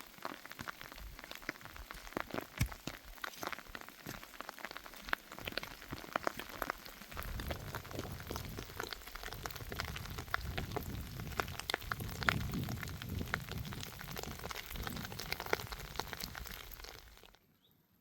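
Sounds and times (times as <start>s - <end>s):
rain falling: 0.0s - 17.4s
raindrops ticking on a surface: 0.0s - 17.4s.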